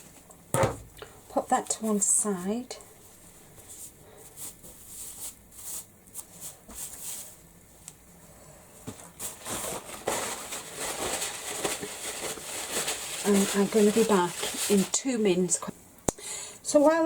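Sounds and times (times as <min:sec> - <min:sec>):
rustling and scraping: 0:01.6 - 0:15.1.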